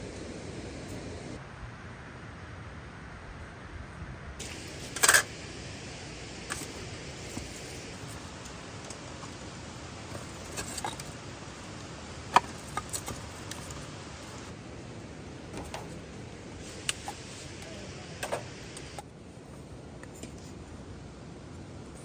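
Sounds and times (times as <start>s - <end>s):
steady hiss: 0.0s - 22.0s
objects clinking and knocking: 6.5s - 14.5s.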